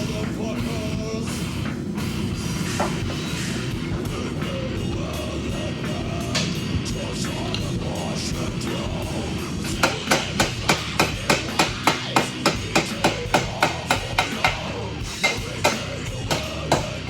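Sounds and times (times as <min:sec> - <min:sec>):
hammer ringing on hot iron: 0:09.7 - 0:17.0.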